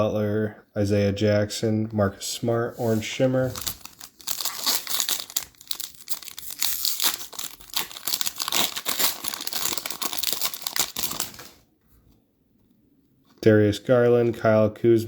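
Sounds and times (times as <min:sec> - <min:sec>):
plastic wrapper crinkling and tearing: 0:03.5 - 0:11.6.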